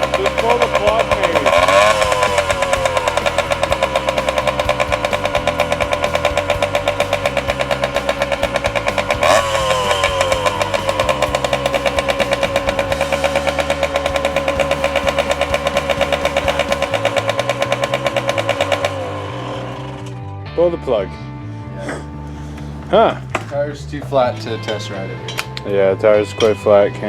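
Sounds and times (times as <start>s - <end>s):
engine pop: 0.0s - 20.3s
two-stroke motorcycle engine idling: 0.0s - 20.3s.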